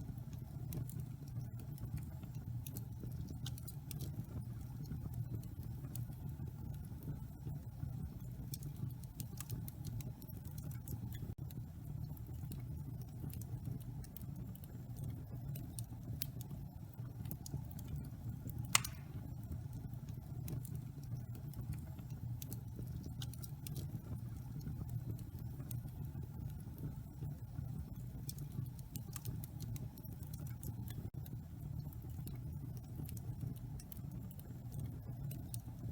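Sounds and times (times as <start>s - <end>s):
fire rumbling and crackling: 0.0s - 35.9s
fire pop: 18.6s - 19.5s.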